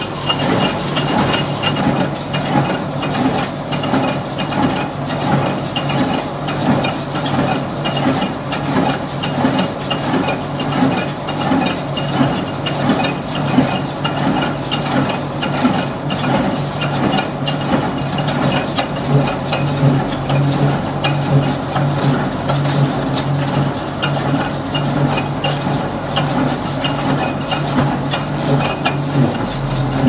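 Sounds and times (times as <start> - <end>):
regular mechanical clatter: 0.0 - 30.0
tractor engine running: 0.0 - 30.0.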